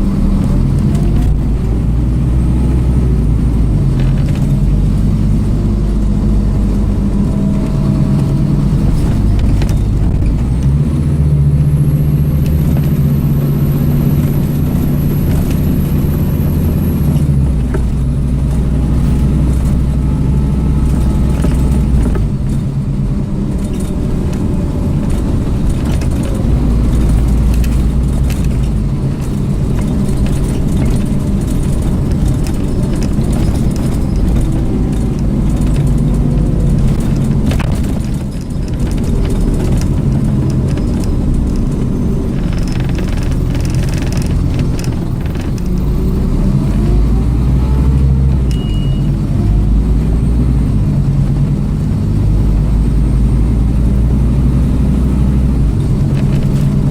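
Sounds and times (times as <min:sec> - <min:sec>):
bus engine running: 0:00.0 - 0:56.9
rattle of loose fittings: 0:23.5 - 0:47.0.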